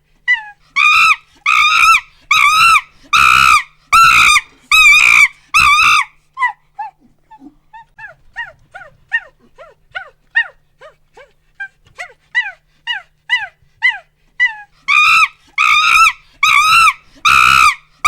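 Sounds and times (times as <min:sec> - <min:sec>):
monkey screaming: 0:00.3 - 0:06.6, 0:12.0 - 0:17.9.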